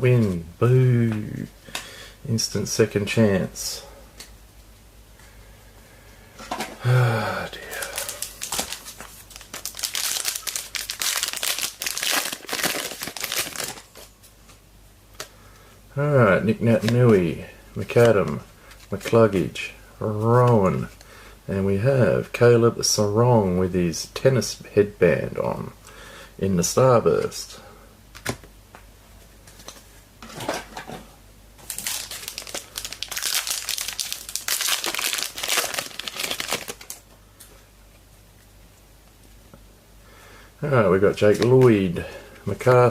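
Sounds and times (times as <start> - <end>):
plastic wrapper crinkling: 7.5 - 14.1, 31.6 - 37.0.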